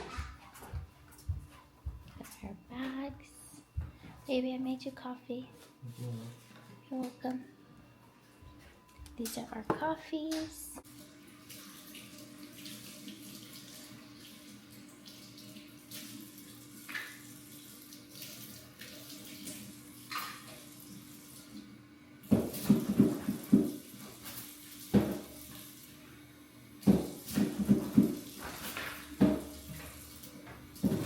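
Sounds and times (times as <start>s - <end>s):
water running from tap: 10.8s - 31.0s.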